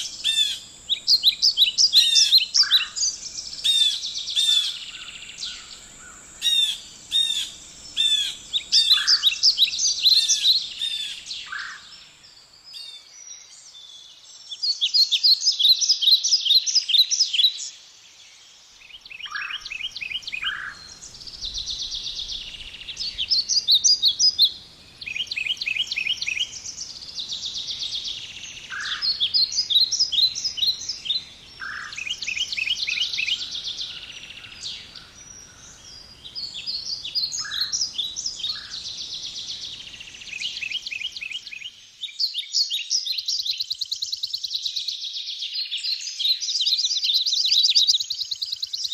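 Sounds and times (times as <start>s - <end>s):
songbirds singing: 0.0s - 48.9s.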